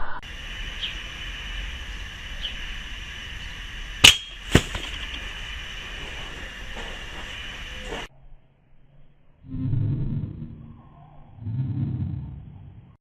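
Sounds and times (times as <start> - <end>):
background hiss: 0.2 - 8.1.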